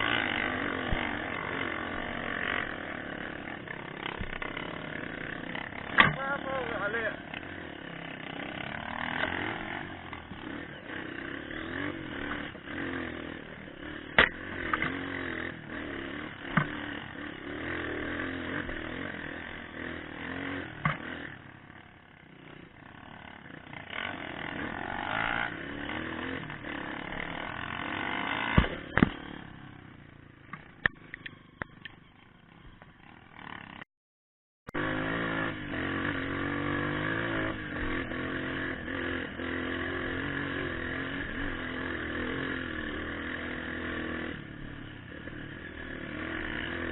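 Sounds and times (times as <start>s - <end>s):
motorcycle engine revving: 0.0s - 33.9s, 34.7s - 46.9s
sharp knocks and clatter: 16.5s - 16.9s, 20.8s - 21.2s.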